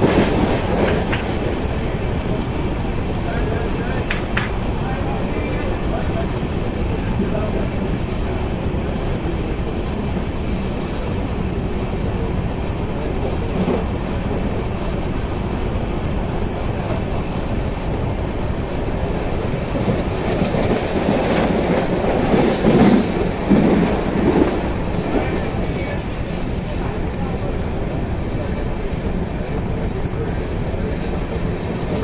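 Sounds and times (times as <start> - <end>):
train wheels rumbling: 0.0 - 32.0.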